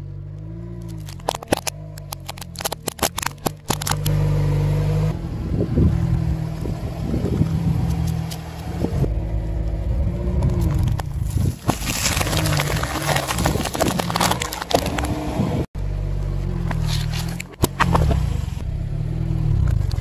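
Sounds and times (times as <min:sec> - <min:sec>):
car engine running: 0:00.0 - 0:20.0
plastic cracking under tyre: 0:00.8 - 0:04.2, 0:10.4 - 0:15.4.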